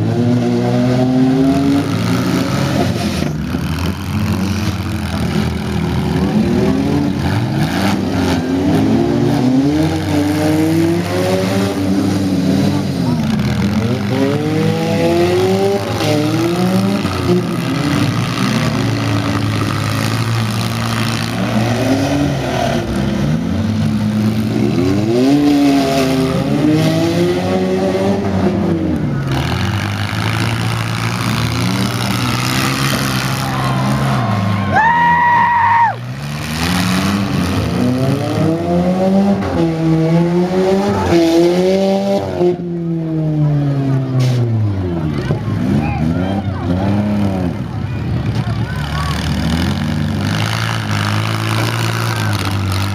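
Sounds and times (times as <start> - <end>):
engines revving hard: 0.0 - 52.9.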